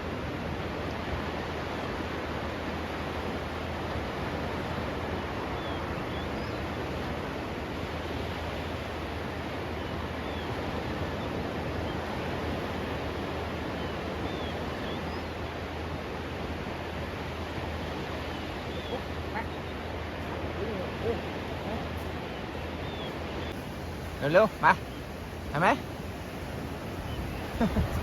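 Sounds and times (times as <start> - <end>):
sea surf rushing: 0.0 - 28.0.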